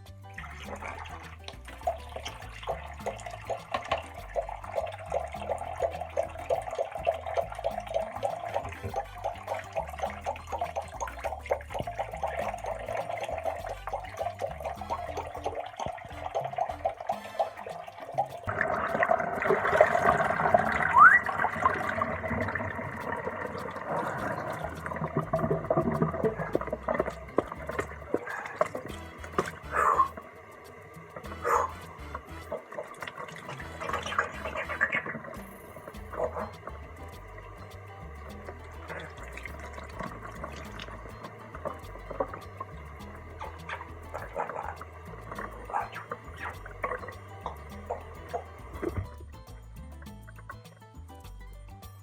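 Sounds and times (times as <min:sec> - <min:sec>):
tap water splashing into sink: 0:00.4 - 0:30.2, 0:31.2 - 0:49.2
rising whistle: 0:20.8 - 0:21.7.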